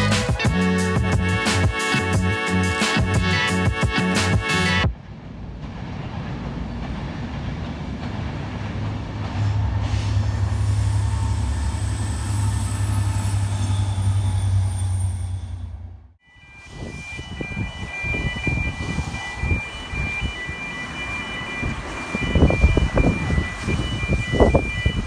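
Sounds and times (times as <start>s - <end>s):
music: 0.0s - 4.9s
train passing: 0.0s - 25.0s.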